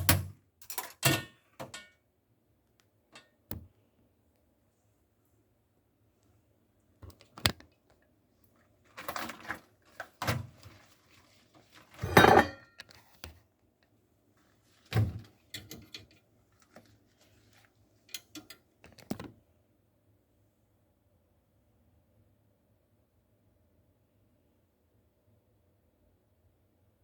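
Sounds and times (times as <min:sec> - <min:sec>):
dishes clinking and knocking: 0:00.0 - 0:01.9, 0:12.0 - 0:12.8.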